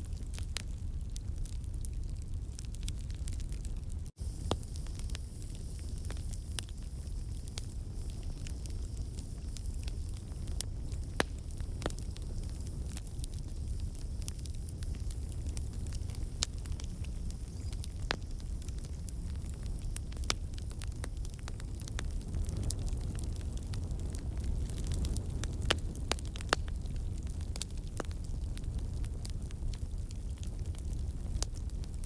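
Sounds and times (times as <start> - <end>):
flames rumbling: 0.0 - 32.0
logs crackling and popping: 0.0 - 32.0.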